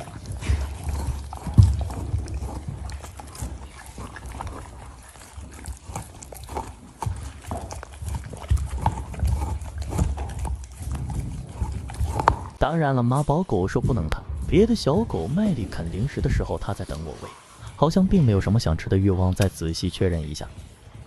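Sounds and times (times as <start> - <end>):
dogs chewing treats: 0.0 - 12.6.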